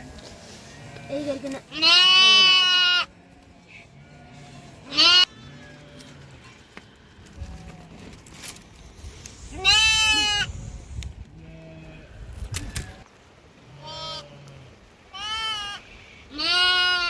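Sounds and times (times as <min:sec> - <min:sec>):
sheep bleating: 0:00.7 - 0:08.0, 0:09.6 - 0:10.5, 0:13.7 - 0:17.0.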